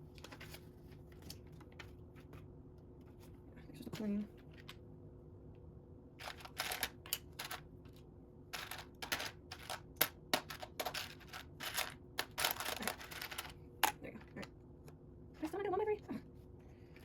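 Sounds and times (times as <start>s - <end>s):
plastic bricks clicking and clattering: 6.2s - 7.6s, 8.6s - 14.4s.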